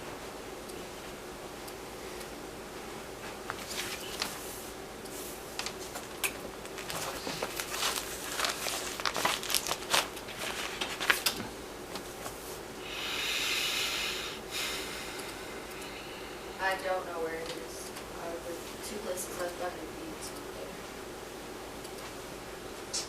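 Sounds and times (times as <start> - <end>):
crinkling and rustling: 3.2 - 4.6, 5.2 - 12.6.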